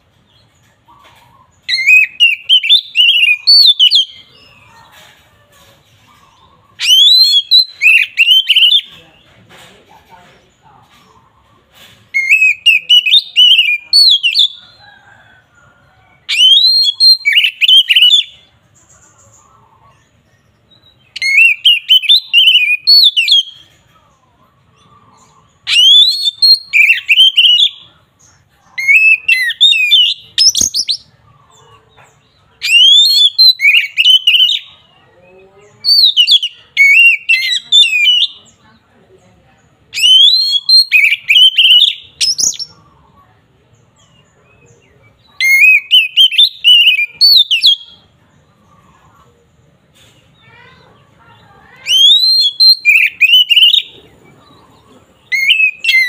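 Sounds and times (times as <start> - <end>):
bird singing whistled song: 1.4 - 4.7, 6.7 - 8.9, 12.1 - 14.6, 16.3 - 18.5, 20.7 - 23.7, 25.1 - 27.9, 28.8 - 31.1, 32.6 - 34.8, 35.8 - 38.5, 39.9 - 42.8, 45.1 - 48.1, 51.8 - 54.0, 55.2 - 56.0.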